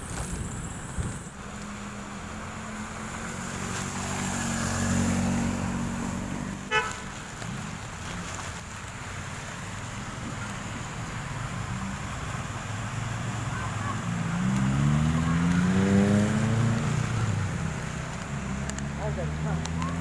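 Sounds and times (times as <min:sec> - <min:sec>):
traffic rumble: 0:00.0 - 0:20.0
vehicle engine passing: 0:00.1 - 0:08.5, 0:09.3 - 0:20.0
vehicle horn toot: 0:06.7 - 0:07.0.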